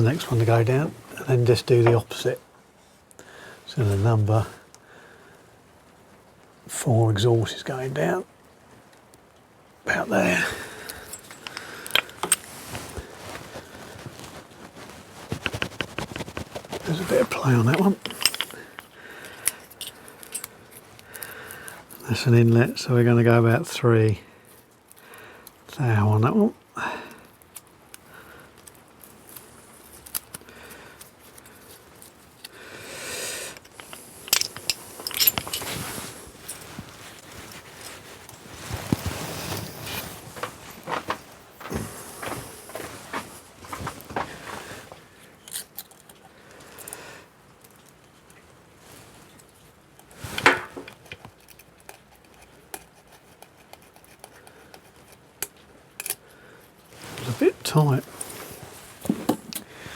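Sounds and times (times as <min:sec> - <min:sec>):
metal tools clinking: 0:10.1 - 0:13.0, 0:16.8 - 0:20.5, 0:33.5 - 0:43.9
metallic clicks and scrapes: 0:10.8 - 0:12.8, 0:15.3 - 0:21.2, 0:33.5 - 0:41.2
metal clatter: 0:16.7 - 0:18.9, 0:33.7 - 0:36.0.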